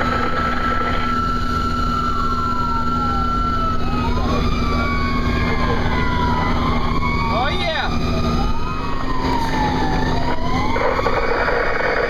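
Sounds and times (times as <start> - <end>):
fire engine siren wailing: 0.0 - 12.0
truck engine drone: 0.0 - 12.0.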